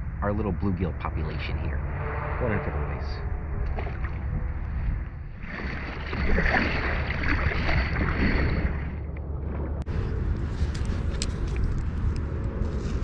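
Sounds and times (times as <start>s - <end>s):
wind on microphone: 0.0s - 13.0s
water splashing: 1.8s - 12.0s.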